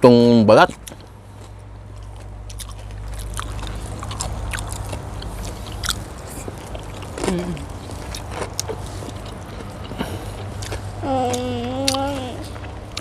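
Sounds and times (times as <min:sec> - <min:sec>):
low steady rumble: 0:00.0 - 0:13.0
chewing crispy food: 0:00.6 - 0:13.0.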